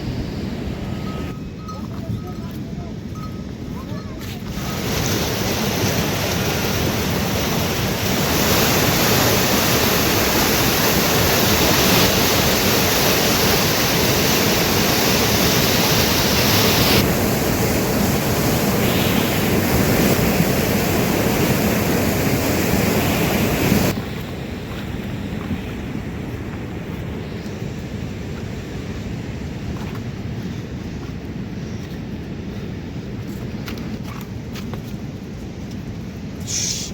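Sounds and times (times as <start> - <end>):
river water rushing: 4.5 - 24.0.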